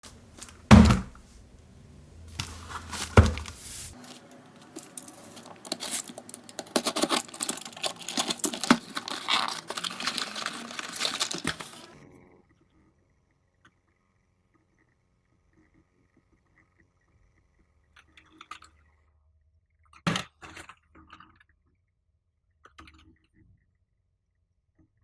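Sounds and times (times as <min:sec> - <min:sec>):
card tearing: 0:04.0 - 0:12.0
plastic crinkling: 0:04.0 - 0:12.0.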